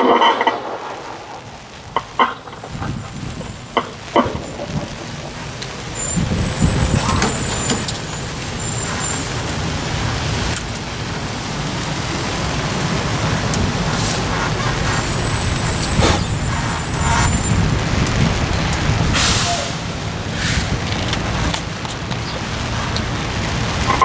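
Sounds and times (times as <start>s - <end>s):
traffic engines and tyres: 0.0s - 24.0s
brake squeal: 2.2s - 24.0s
air brakes hissing: 5.6s - 21.8s.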